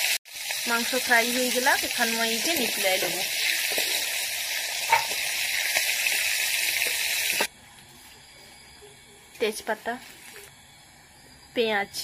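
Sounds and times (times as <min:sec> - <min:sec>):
chicken sizzling in hot oil: 0:00.0 - 0:07.5.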